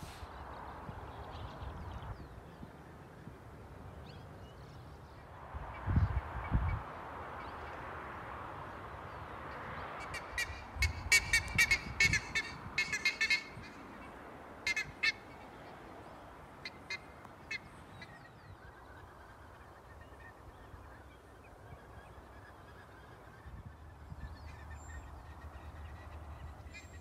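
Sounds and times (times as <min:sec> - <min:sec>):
wind noise on microphone: 0:00.0 - 0:02.8, 0:05.4 - 0:15.3, 0:23.2 - 0:27.0
birds short sharp calls: 0:09.8 - 0:27.0.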